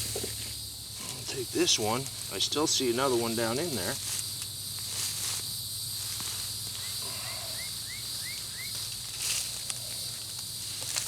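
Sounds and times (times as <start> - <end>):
insects droning: 0.0 - 11.0
bird chirping: 6.8 - 8.8.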